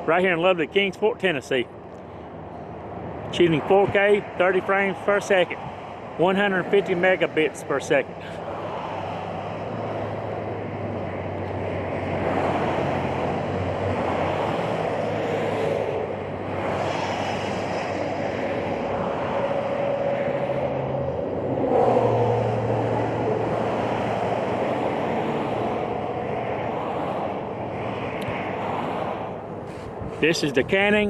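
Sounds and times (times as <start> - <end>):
highway traffic: 0.0 - 31.0
wind on microphone: 8.4 - 31.0.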